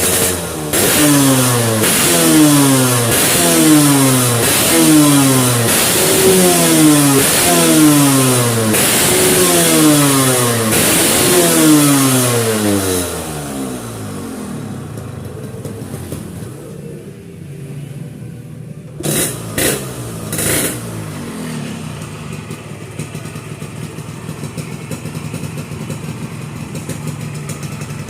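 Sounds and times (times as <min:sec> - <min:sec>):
engine revving: 0:00.0 - 0:16.6, 0:19.0 - 0:22.7
engine idling: 0:00.0 - 0:17.3, 0:19.0 - 0:28.0.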